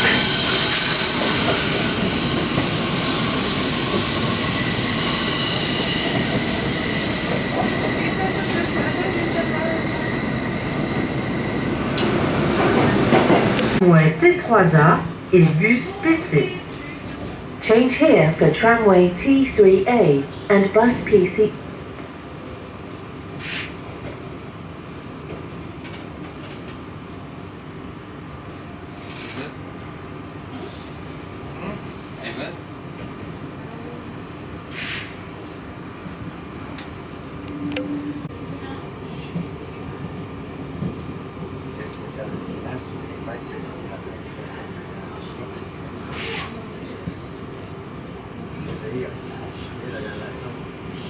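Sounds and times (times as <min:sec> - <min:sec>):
train wheels rumbling on track: 0:00.0 - 0:13.8
wheels squealing: 0:00.0 - 0:13.8
brief hiss: 0:23.4 - 0:23.8, 0:34.7 - 0:35.2.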